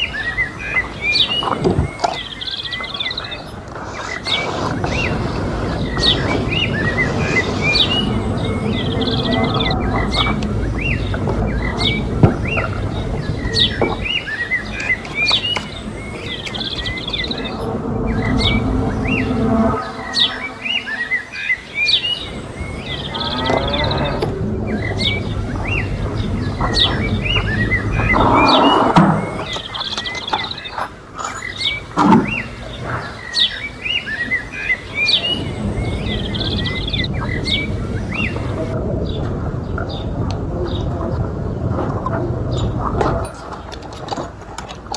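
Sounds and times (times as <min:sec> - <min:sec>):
small birds chirping: 0:00.0 - 0:44.9
steady low hum: 0:02.8 - 0:30.0
low rumble: 0:15.7 - 0:20.9.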